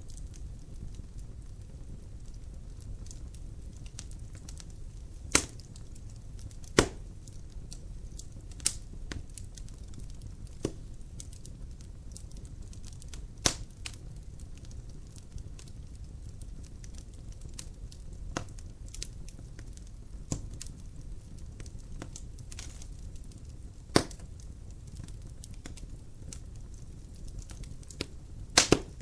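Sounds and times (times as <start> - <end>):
burning wood crackling: 0.0 - 29.0
loud pops of burning wood: 0.0 - 29.0
wood fire burning: 0.0 - 29.0.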